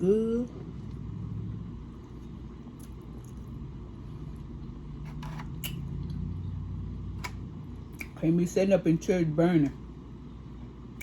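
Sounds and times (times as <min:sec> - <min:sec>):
low steady hum: 0:00.0 - 0:11.0
mouth clicks while chewing: 0:07.9 - 0:08.2.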